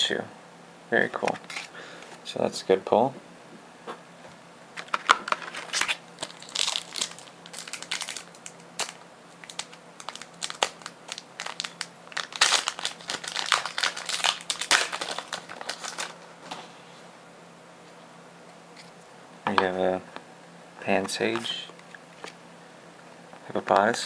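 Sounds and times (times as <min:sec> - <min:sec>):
foil wrapper crinkling: 0:04.8 - 0:16.3.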